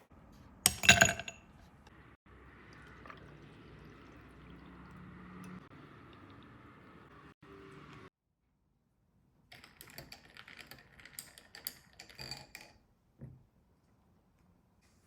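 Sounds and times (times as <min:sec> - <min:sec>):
faint kitchen noise: 0:00.0 - 0:08.1
kitchenware clinking: 0:00.7 - 0:01.5.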